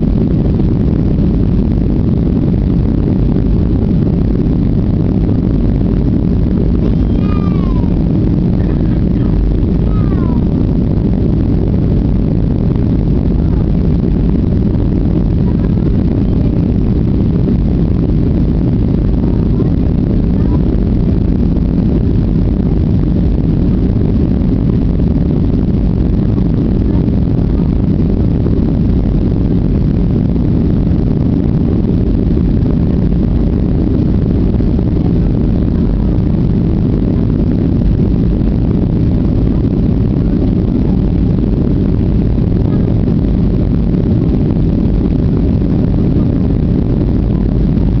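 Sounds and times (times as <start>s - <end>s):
jet engine cabin rumble: 0.0s - 48.0s.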